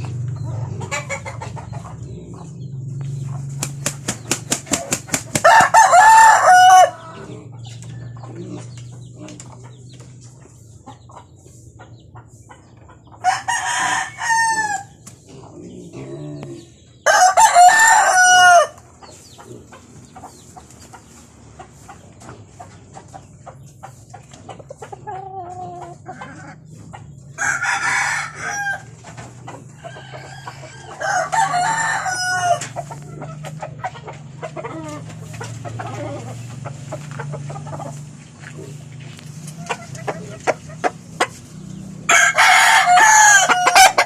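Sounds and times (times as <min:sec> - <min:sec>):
hens clucking: 0:00.0 - 0:44.0
rooster crowing: 0:05.4 - 0:07.2, 0:13.2 - 0:14.9, 0:17.0 - 0:18.8, 0:27.4 - 0:29.0, 0:29.8 - 0:32.8, 0:42.1 - 0:44.0.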